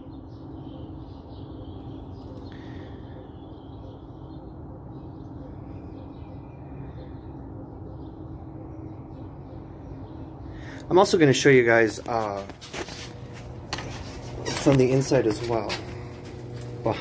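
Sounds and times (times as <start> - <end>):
faint bird chirps: 0.0 - 10.8
low hum: 0.0 - 17.0.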